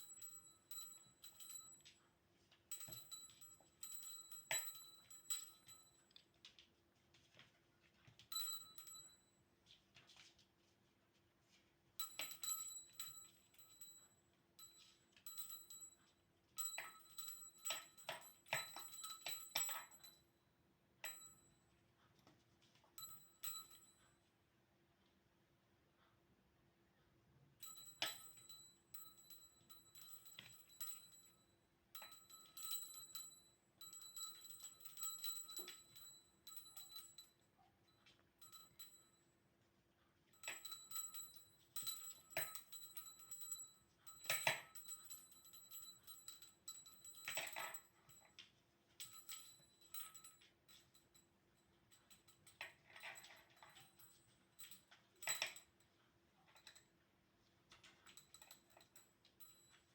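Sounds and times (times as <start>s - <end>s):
small bell jingling: 0.0s - 10.7s, 11.5s - 20.4s, 21.0s - 21.8s, 22.6s - 24.3s, 27.6s - 39.4s, 40.3s - 57.0s, 57.7s - 59.9s
light clicks and rattles: 40.3s - 59.9s.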